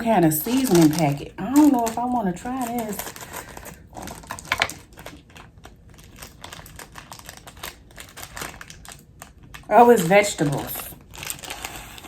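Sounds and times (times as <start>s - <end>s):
plastic packet crinkling: 0.0s - 12.0s.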